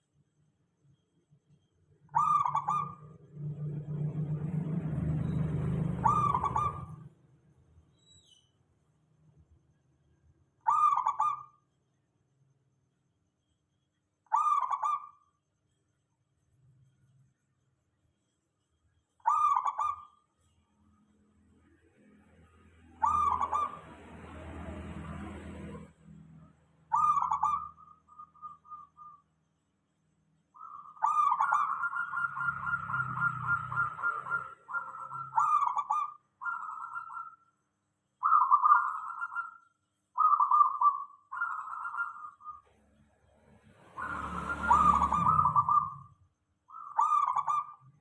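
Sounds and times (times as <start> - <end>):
dove cooing: 2.2 - 3.0, 6.0 - 7.1, 10.7 - 11.5, 19.2 - 20.1, 23.0 - 23.9, 30.6 - 37.4, 38.2 - 39.6, 40.2 - 42.6, 44.0 - 46.1, 46.7 - 47.9.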